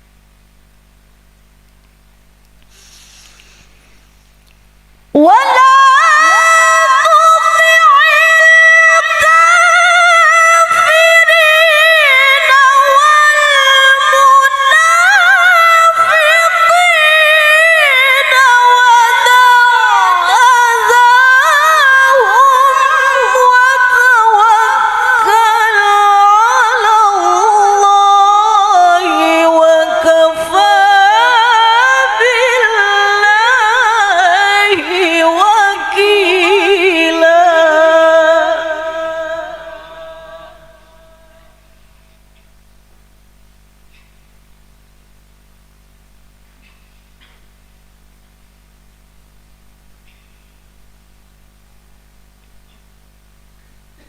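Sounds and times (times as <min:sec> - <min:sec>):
woman reciting melodically: 0:05.2 - 0:41.7.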